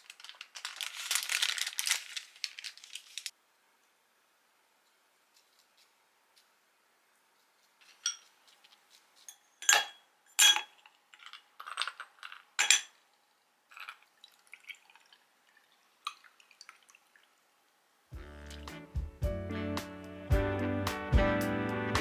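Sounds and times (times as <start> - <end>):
glass and tableware clinking: 7.9 - 8.3, 9.3 - 13.0.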